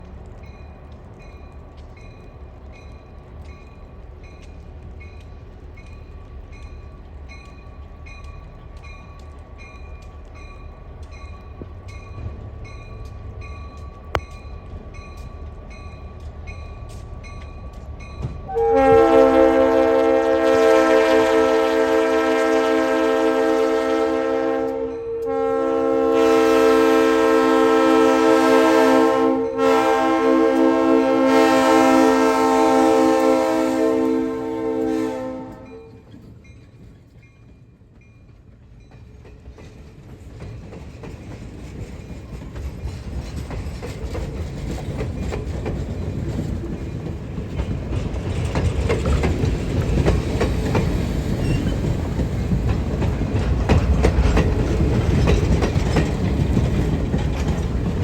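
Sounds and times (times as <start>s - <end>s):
locomotive air horn blasts: 18.5s - 36.0s.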